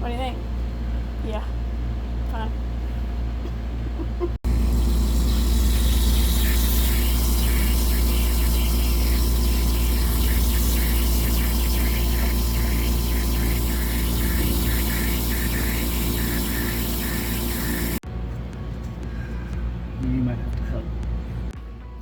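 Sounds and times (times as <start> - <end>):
motor droning: 4.5 - 18.0.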